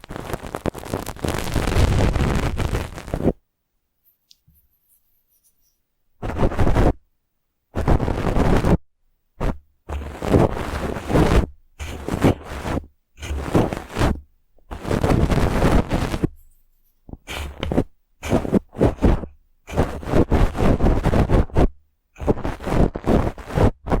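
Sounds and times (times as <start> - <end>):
brush bristles scratching: 4.1 - 6.9, 9.4 - 24.0.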